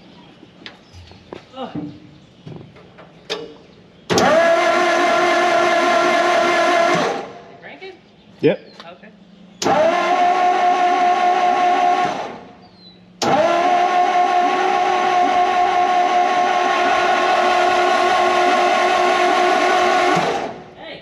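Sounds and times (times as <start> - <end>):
starter motor cranking engine: 3.0 - 7.5, 9.6 - 20.8.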